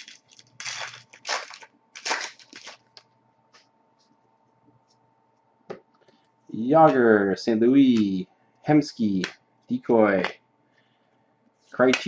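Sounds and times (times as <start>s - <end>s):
foil pack tearing and crinkling: 0.0s - 3.0s.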